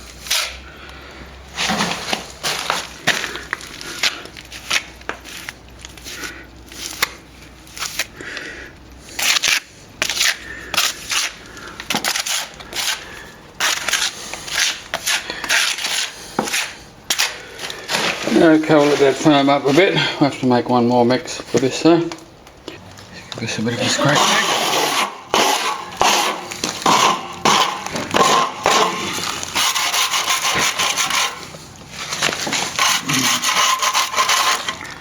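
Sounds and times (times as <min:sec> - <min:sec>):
plastering tool scraping: 0:00.2 - 0:00.6, 0:01.6 - 0:03.3, 0:09.2 - 0:20.2, 0:23.7 - 0:35.0.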